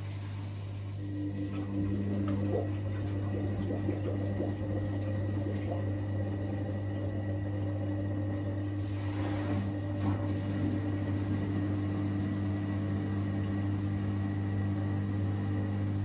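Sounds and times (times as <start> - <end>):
drain pump running: 0.0 - 16.0
washing machine low hum: 0.0 - 16.0
water gurgling and splashing: 1.1 - 14.0.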